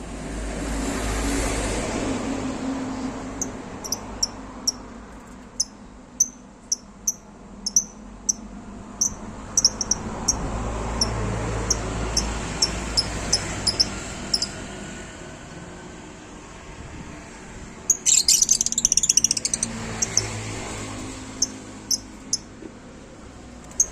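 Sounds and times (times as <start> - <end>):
lovebirds chirping: 5.6 - 8.4, 9.0 - 10.4, 11.7 - 14.6, 17.9 - 20.4.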